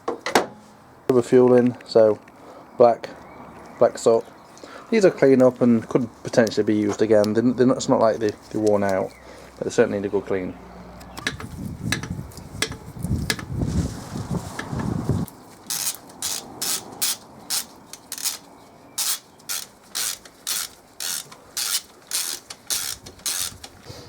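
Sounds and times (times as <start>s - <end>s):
handling noise: 11.1s - 24.0s
hand ratchet clicking: 11.2s - 13.4s, 15.7s - 23.8s.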